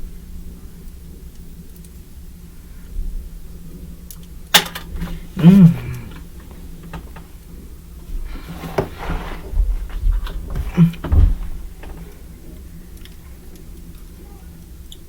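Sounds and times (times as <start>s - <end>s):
plastic clicks and rustles: 4.1s - 14.1s.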